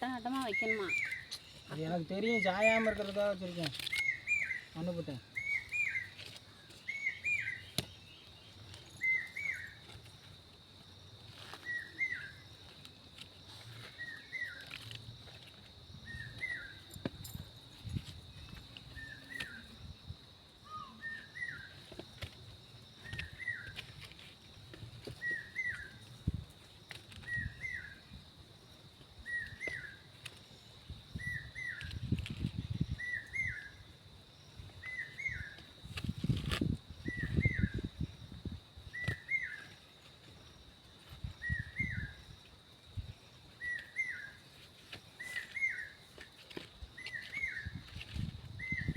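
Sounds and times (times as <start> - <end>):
bird chirping: 0.0 - 10.0.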